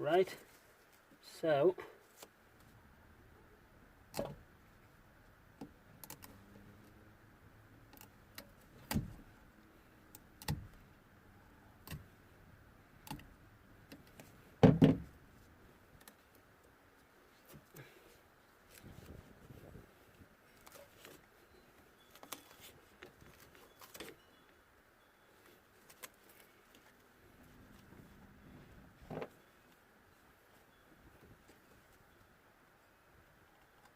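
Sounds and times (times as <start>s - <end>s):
clicks and knocks of wiring work: 4.1s - 4.4s, 7.9s - 9.3s, 10.0s - 10.8s, 13.0s - 15.1s.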